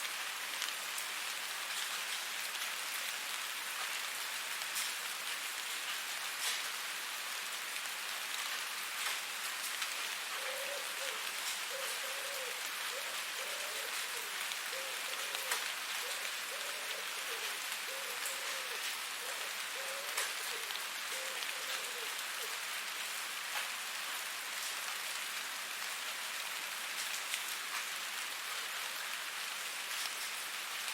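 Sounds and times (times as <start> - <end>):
rain on a hard surface: 0.0 - 30.9
raindrops ticking: 8.3 - 22.3.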